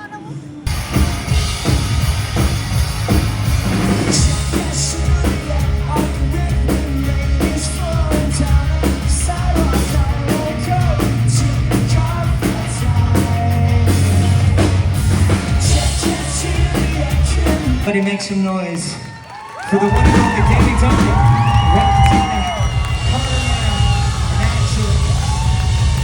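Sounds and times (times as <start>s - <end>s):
drums: 0.6s - 18.4s, 19.6s - 26.0s
bass notes: 0.7s - 17.9s, 20.0s - 26.0s
person singing: 4.1s - 14.6s, 15.5s - 17.9s.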